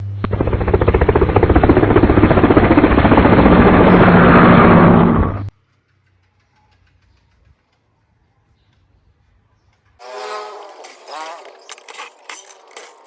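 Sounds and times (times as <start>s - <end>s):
fan motor low hum: 0.0s - 5.5s.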